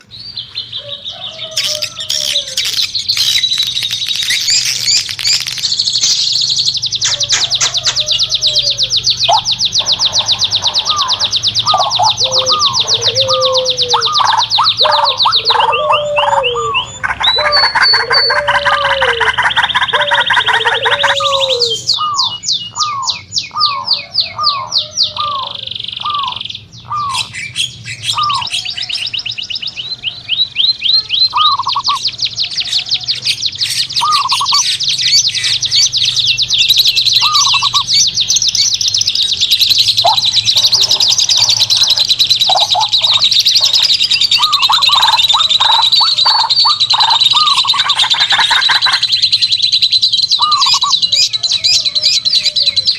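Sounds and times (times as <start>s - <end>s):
high bird trills: 0.0s - 52.9s
down-slurred bird whistles: 19.6s - 32.1s, 33.7s - 47.9s.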